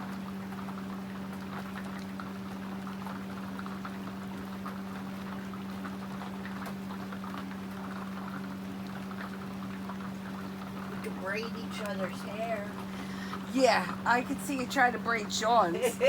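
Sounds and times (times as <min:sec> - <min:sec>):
steady low hum: 0:00.0 - 0:16.0
faint ticking and pattering: 0:09.9 - 0:16.0.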